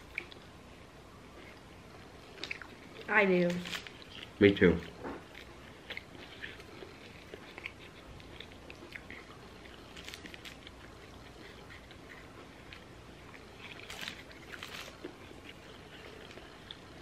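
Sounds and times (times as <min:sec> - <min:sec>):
people chewing: 0:01.3 - 0:17.0
paper wrapper crackling: 0:13.8 - 0:15.0.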